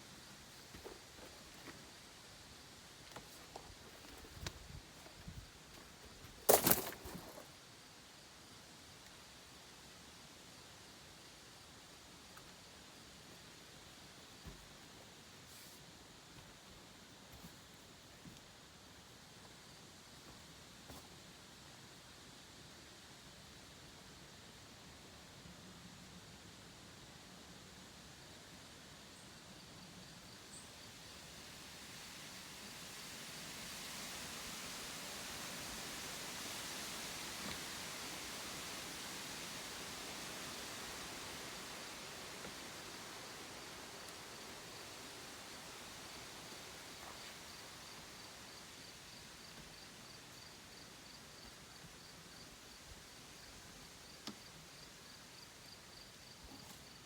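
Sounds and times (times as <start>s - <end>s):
faint background hiss: 0.0s - 57.0s
cricket chirping: 5.3s - 7.6s, 39.9s - 57.0s.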